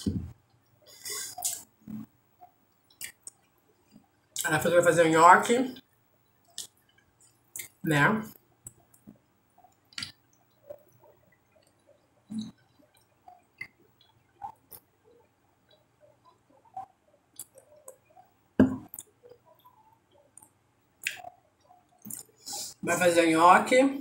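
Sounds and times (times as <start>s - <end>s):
soft wet chewing: 0.3s - 4.5s, 5.8s - 22.8s
mouth clicks: 1.0s - 2.1s, 15.7s - 18.1s, 18.8s - 21.4s.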